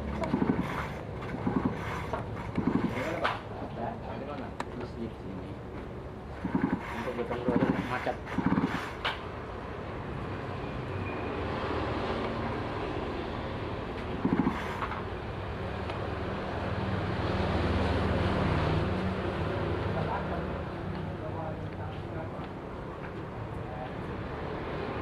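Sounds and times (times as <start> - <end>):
outboard motor running: 0.0 - 3.2.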